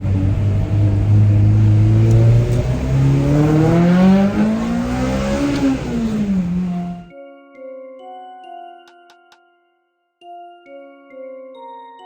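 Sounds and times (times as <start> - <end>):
vehicle engine revving: 0.0 - 7.1.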